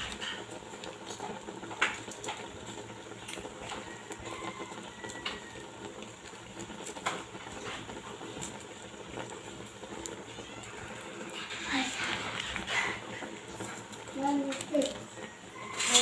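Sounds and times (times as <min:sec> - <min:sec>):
spoon scraping a cooking pot: 0:11.2 - 0:13.8.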